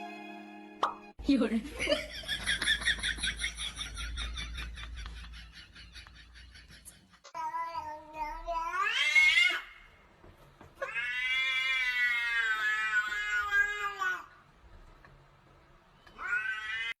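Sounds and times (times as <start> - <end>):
cat meowing: 7.4 - 9.8, 10.8 - 14.3, 16.1 - 17.0.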